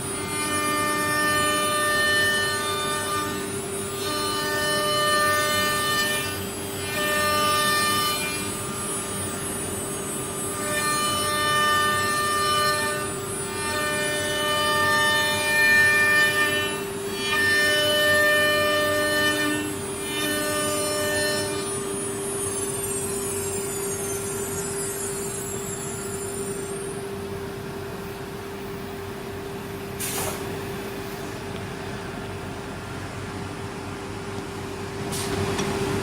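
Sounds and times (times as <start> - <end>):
burst of hiss: 30.0 - 30.6.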